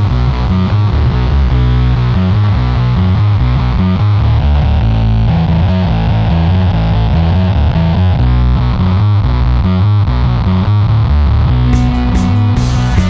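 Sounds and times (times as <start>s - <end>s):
fuzzed electric guitar riff: 11.7s - 13.0s.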